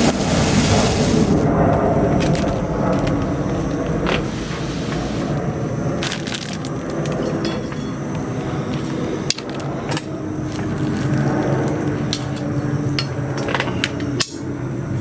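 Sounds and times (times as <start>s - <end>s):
burning wood pops and cracks: 0.0s - 4.2s
bonfire burning rustle: 0.0s - 7.4s.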